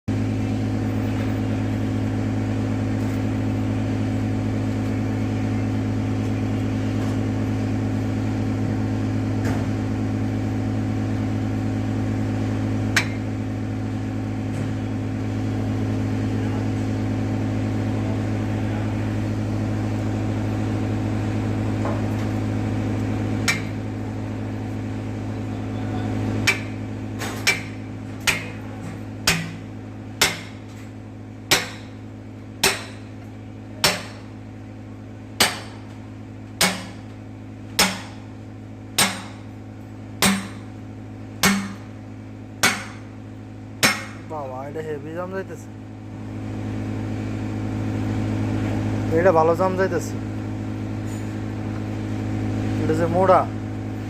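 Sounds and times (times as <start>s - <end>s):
low machine hum: 0.1s - 54.0s
hammer striking metal: 13.0s - 13.2s, 23.4s - 23.8s, 26.4s - 30.9s, 31.5s - 32.0s, 32.6s - 33.1s, 33.8s - 34.3s, 35.4s - 35.8s, 36.6s - 37.0s, 37.8s - 38.2s, 39.0s - 39.5s, 40.2s - 40.7s, 41.4s - 41.9s, 42.6s - 43.1s, 43.8s - 44.3s.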